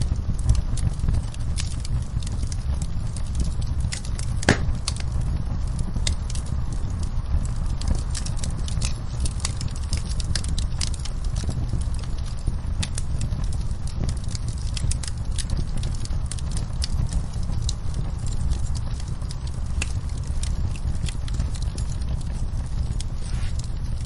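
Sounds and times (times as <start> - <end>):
low fire rumble: 0.0 - 24.0
wood fire crackling and popping: 0.0 - 24.0.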